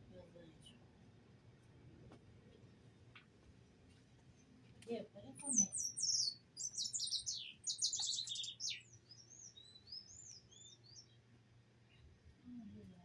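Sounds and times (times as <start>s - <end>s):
small birds chirping: 5.2s - 12.1s
whistled bird notes: 5.4s - 11.1s.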